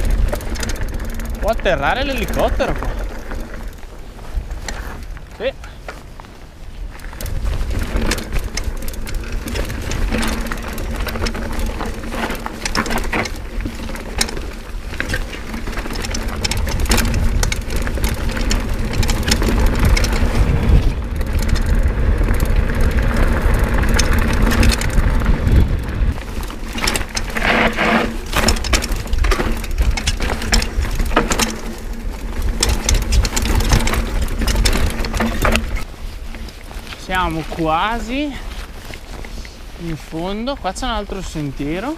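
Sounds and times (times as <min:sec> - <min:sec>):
tyres crunching over stones: 0:00.0 - 0:41.9
wind on microphone: 0:14.8 - 0:26.6
bike knocks: 0:23.2 - 0:35.8.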